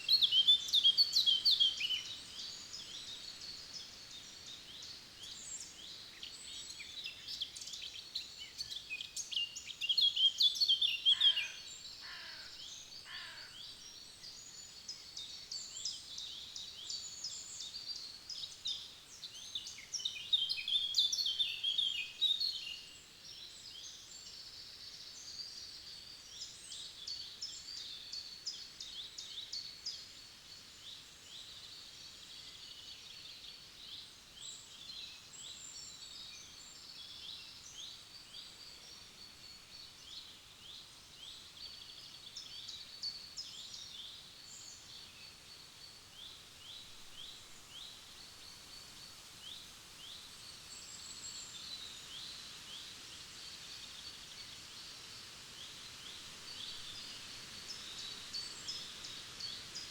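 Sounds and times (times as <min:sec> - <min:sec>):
songbirds chorus: 0:10.6 - 0:19.0.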